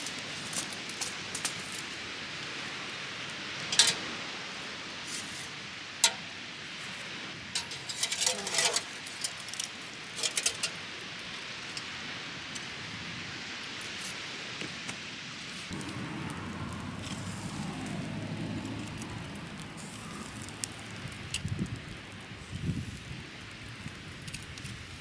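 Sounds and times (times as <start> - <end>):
small hard objects clinking: 7.6 - 10.8.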